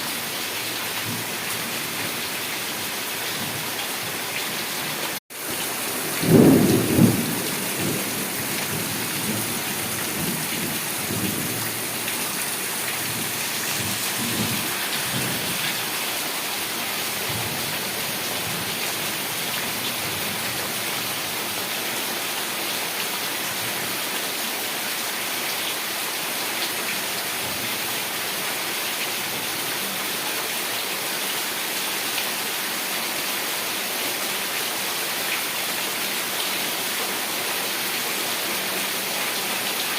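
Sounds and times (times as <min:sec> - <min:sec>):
heavy rain falling: 0:00.0 - 0:39.9
thunder rumbles: 0:05.9 - 0:11.7
thunder crack: 0:06.1 - 0:09.4.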